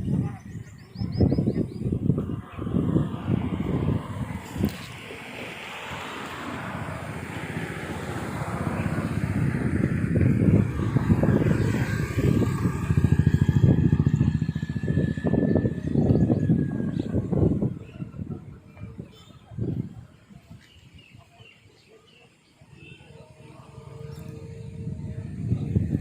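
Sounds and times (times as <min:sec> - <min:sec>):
passing train rumble: 0:02.0 - 0:19.6, 0:23.3 - 0:26.0.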